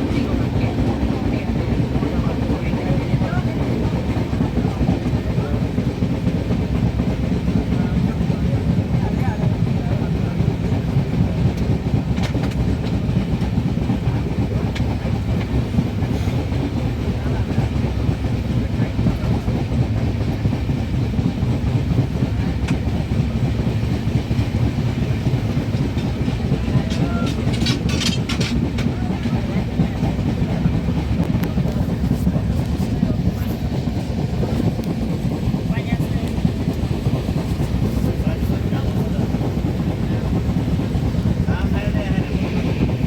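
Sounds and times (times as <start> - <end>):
train rumbling along track: 0.0 - 43.0
wheels clicking over rail joints: 22.2 - 43.0.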